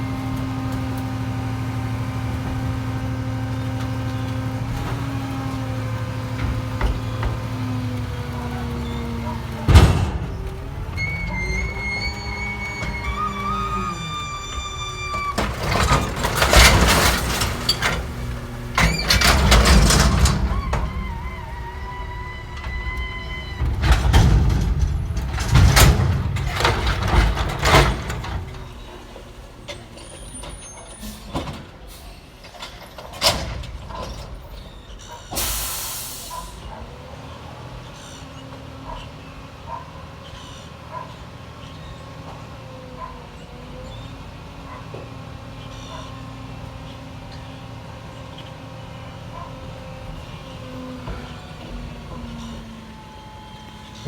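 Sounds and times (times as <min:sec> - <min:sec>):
diesel engine running: 0:00.0 - 0:32.4, 0:33.7 - 0:54.0
garbage truck clattering bangs: 0:00.0 - 0:54.0
air brake hiss: 0:35.3 - 0:36.6.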